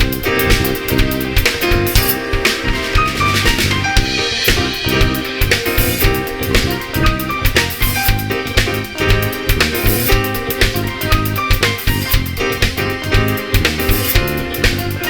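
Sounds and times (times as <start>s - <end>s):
band playing: 0.0s - 15.0s
drum kit beat: 0.0s - 15.0s.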